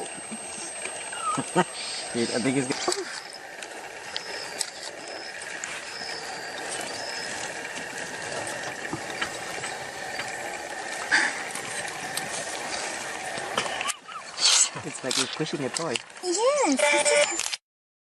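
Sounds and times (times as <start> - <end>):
porcupine rattling quills: 1.9 - 16.1.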